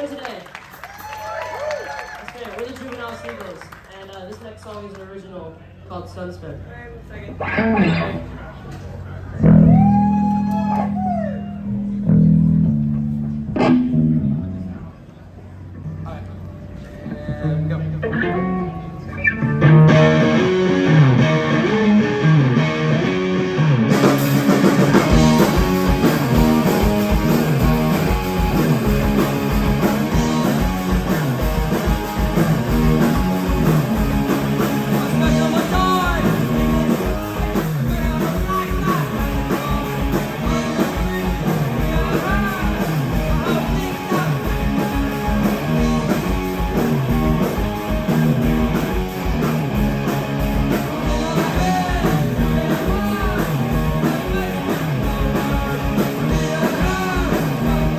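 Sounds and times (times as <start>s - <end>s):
guitar riff: 7.3s - 8.5s, 9.4s - 57.9s
rock band playing live: 7.4s - 8.4s, 9.4s - 15.0s, 15.6s - 57.9s
drums with cymbals: 23.9s - 57.9s.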